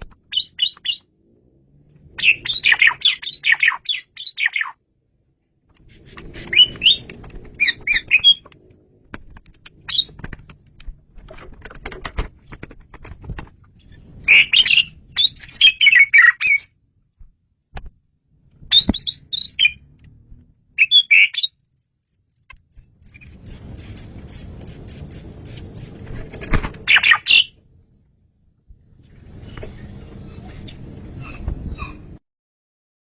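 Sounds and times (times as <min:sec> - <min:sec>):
starling whistles and chirps: 0:00.3 - 0:01.1, 0:02.2 - 0:04.8, 0:06.0 - 0:08.5, 0:09.8 - 0:10.2, 0:13.8 - 0:16.8, 0:18.7 - 0:19.8, 0:20.8 - 0:21.7, 0:26.9 - 0:27.6.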